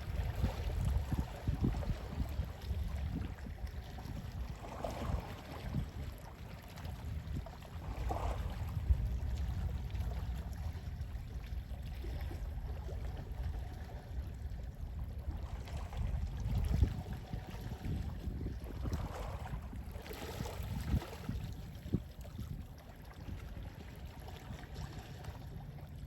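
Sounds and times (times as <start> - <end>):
sea waves lapping: 0.0 - 26.0
sea wind rumble: 0.0 - 26.0.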